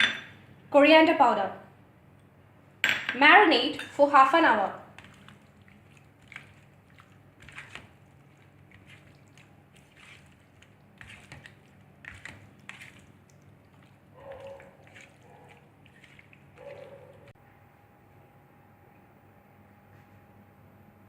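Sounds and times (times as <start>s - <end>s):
raw chicken squishing: 5.0s - 17.3s.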